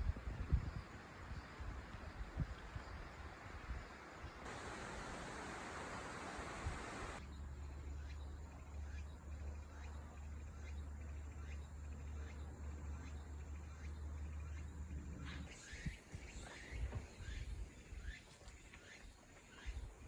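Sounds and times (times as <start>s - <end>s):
hiss: 4.5s - 7.2s.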